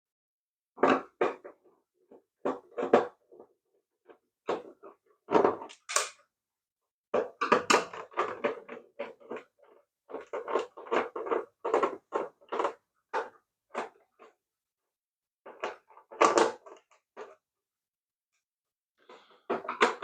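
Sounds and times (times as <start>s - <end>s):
plastic toy parts clicking: 5.6s - 6.2s.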